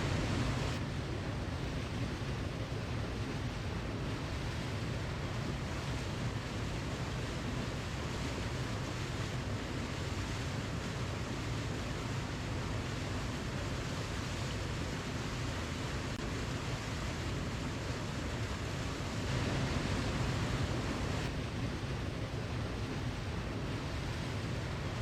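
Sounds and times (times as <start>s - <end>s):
waterfall rushing: 14.6s - 21.3s.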